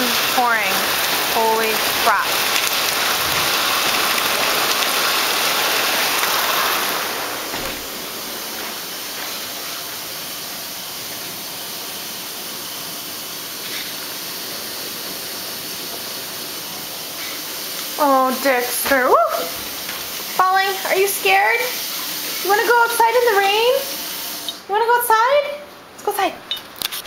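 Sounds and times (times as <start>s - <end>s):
heavy rain pouring: 0.0s - 24.5s.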